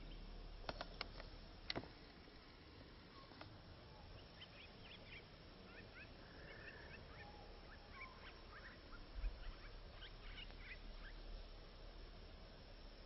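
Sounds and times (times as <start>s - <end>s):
faint bird chirps: 3.0s - 11.9s.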